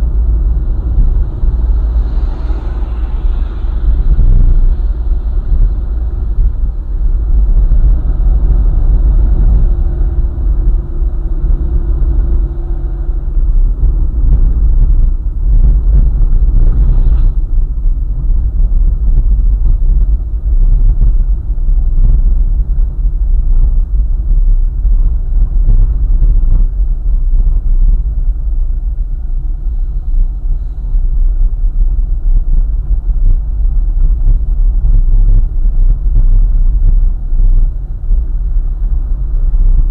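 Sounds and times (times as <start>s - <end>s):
higher drone: 0.0s - 18.2s
road and engine rumble: 0.0s - 39.9s.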